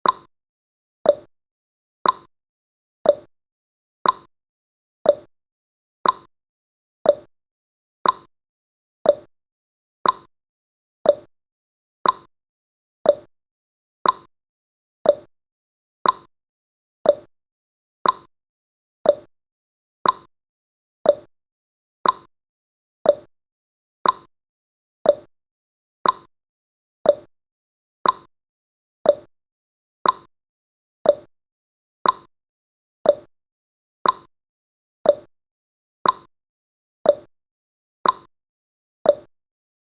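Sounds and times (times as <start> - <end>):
clock ticking: 2.0 - 2.3, 4.0 - 4.3, 6.0 - 6.3, 8.0 - 8.3, 10.0 - 10.3, 12.0 - 12.3, 14.0 - 14.3, 15.1 - 15.3, 16.0 - 16.3, 18.0 - 18.3, 19.1 - 19.3, 20.0 - 20.3, 21.1 - 21.3, 22.0 - 22.3, 24.0 - 24.3, 26.0 - 26.3, 28.0 - 28.3, 29.1 - 29.3, 30.0 - 30.3, 31.1 - 31.3, 32.0 - 32.3, 33.1 - 33.3, 34.0 - 34.3, 35.1 - 35.3, 36.0 - 36.3, 38.0 - 38.3, 39.1 - 39.3.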